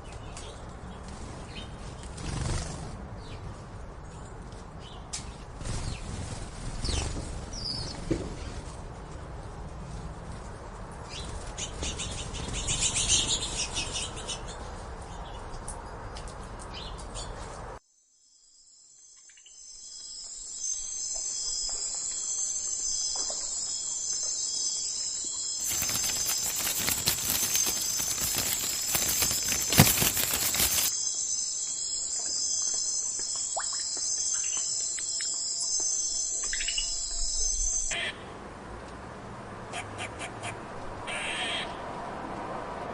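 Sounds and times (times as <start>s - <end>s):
wing flutter: 1.0s - 3.0s, 25.6s - 31.0s
insect chorus: 17.9s - 38.0s
small birds chirping: 22.7s - 31.0s
bird calls: 24.2s - 30.9s
rushing noise: 25.6s - 30.9s.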